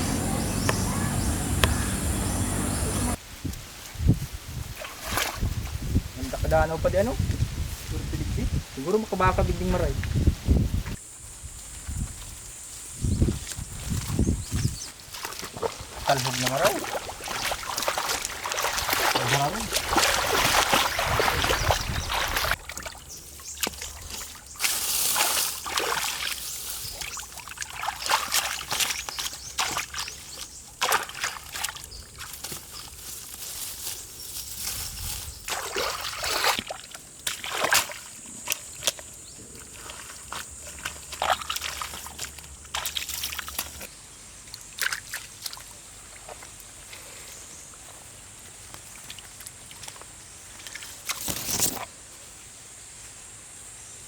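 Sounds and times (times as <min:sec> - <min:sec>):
shallow water sloshing: 0:15.1 - 0:32.8.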